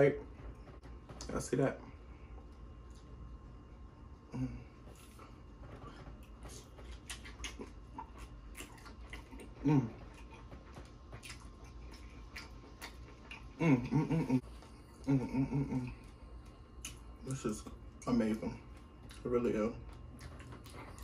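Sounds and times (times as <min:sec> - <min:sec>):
man chewing: 0:02.1 - 0:03.4, 0:04.1 - 0:21.0
man humming mmm: 0:04.2 - 0:04.8, 0:09.3 - 0:10.2, 0:13.4 - 0:16.1
wet mouth clicks: 0:06.5 - 0:10.5.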